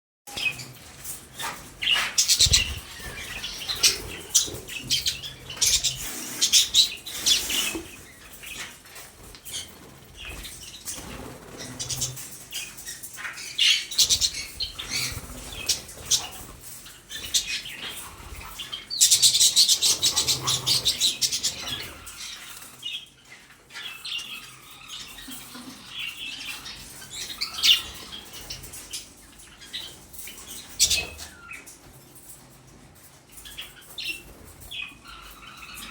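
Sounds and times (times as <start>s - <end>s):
parrot flapping wings: 1.5s - 4.8s.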